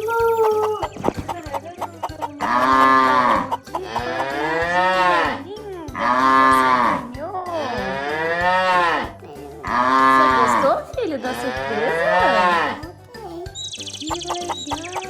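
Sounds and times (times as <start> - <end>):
cow mooing: 2.4 - 5.4, 6.0 - 12.8.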